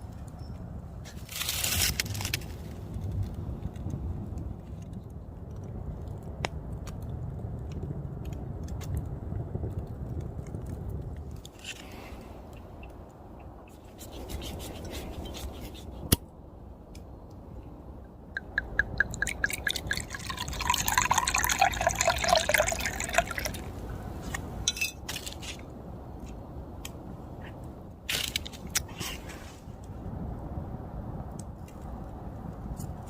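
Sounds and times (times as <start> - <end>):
liquid pouring into container: 18.4 - 23.7.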